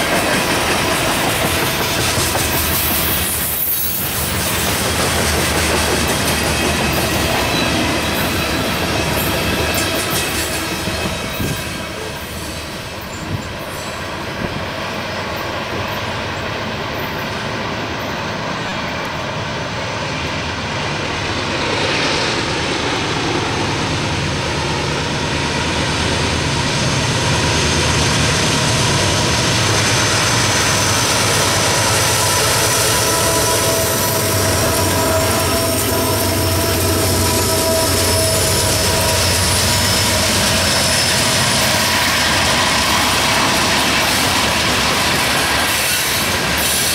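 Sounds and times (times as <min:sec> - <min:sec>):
diesel locomotive engines rumbling: 0:00.0 - 0:46.9
freight cars rolling on rails: 0:00.0 - 0:46.9
high wheel squeal: 0:02.4 - 0:04.8, 0:29.8 - 0:46.9.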